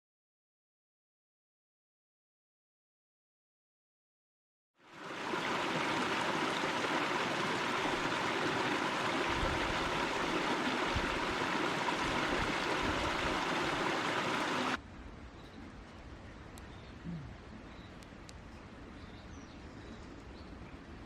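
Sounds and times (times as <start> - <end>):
rushing water hiss: 4.9 - 14.8.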